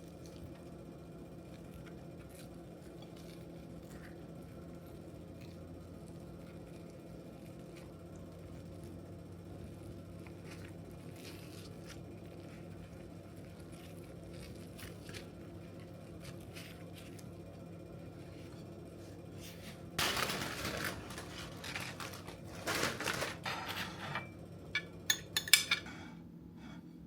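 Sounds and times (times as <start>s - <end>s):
rustling handling noise: 18.2s - 24.3s.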